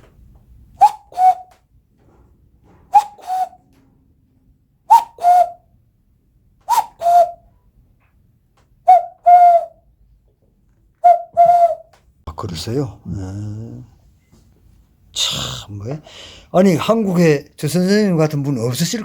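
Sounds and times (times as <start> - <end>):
hand whistle imitating cuckoo: 0.8 - 1.6, 2.9 - 3.7, 4.9 - 5.8, 6.6 - 7.6, 8.8 - 9.9, 11.0 - 12.0.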